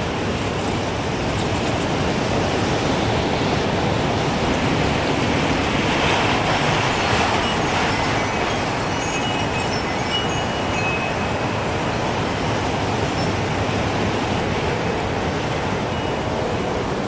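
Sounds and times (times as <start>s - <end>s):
gusting wind rushing: 0.0s - 17.0s
wind chime tinkles: 6.6s - 14.5s.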